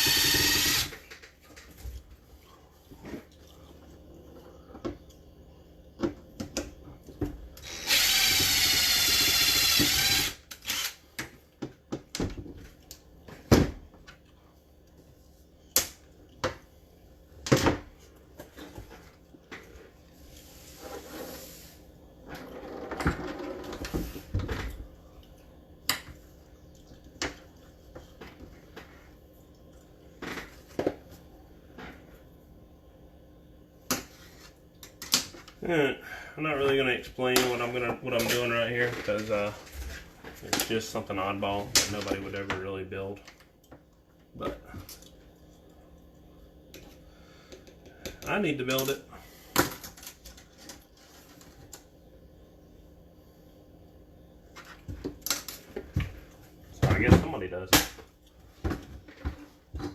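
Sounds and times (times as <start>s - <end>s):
electric power tool whining: 0.0s - 1.0s, 7.6s - 10.9s.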